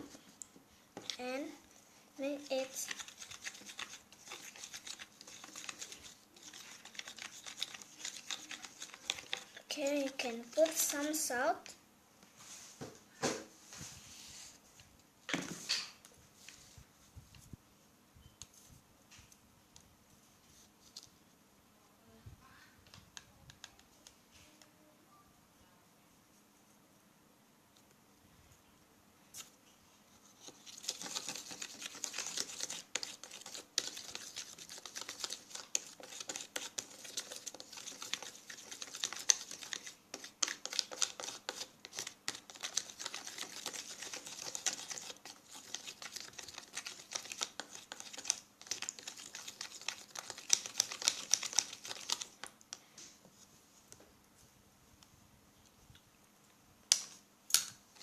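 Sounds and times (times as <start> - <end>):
utensil stirring in container: 2.2 - 11.3, 30.2 - 52.7.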